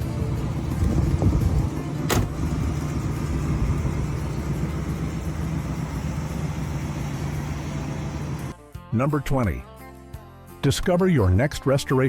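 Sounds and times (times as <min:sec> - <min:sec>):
car engine humming: 0:00.0 - 0:08.5.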